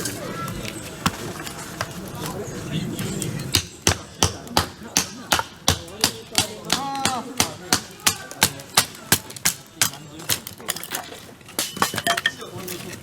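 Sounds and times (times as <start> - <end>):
sharp rhythmic knocks: 3.5 - 10.0.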